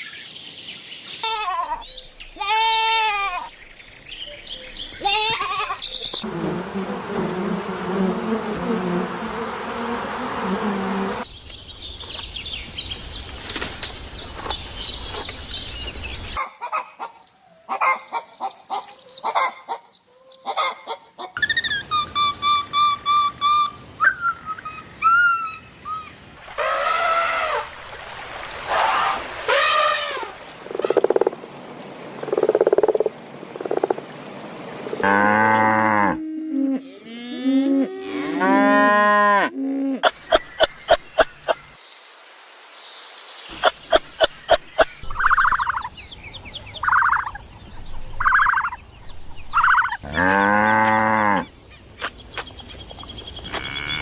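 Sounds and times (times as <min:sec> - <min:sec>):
frog croaking: 0:30.6 - 0:31.4, 0:32.2 - 0:34.0
cow mooing: 0:35.0 - 0:39.6, 0:50.0 - 0:51.4.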